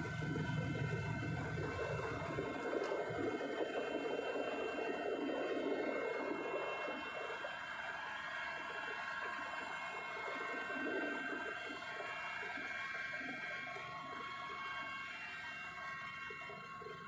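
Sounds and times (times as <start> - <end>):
helicopter rushing noise: 0.0 - 5.2
high steady whines: 0.0 - 17.0.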